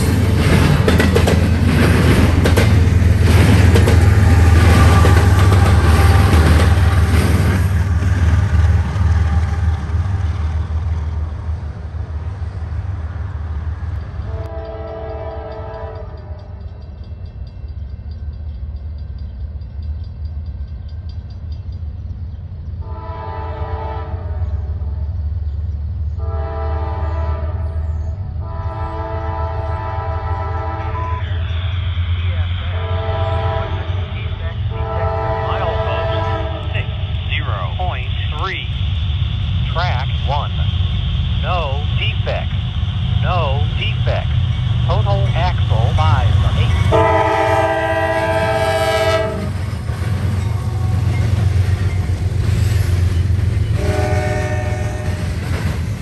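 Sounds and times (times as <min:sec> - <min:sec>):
diesel locomotives rumbling: 0:00.0 - 0:56.0
freight train passing: 0:00.0 - 0:56.0
locomotive horn blasts: 0:14.3 - 0:16.6, 0:22.8 - 0:24.4, 0:26.2 - 0:27.8, 0:28.4 - 0:38.0, 0:45.0 - 0:49.6, 0:53.7 - 0:55.4.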